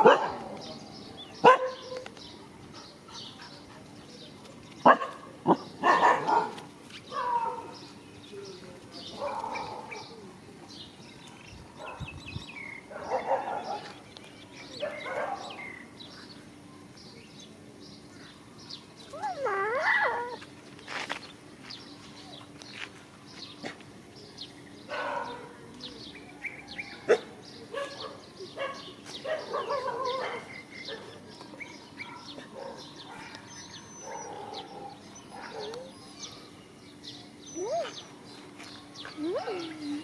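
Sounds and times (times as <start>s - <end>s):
dogs barking: 0.0s - 0.8s, 1.4s - 2.1s, 4.8s - 7.8s, 9.1s - 10.2s, 12.8s - 14.0s, 14.7s - 15.8s, 24.9s - 25.6s, 26.9s - 36.4s
dog whining: 19.1s - 20.4s, 37.5s - 38.1s.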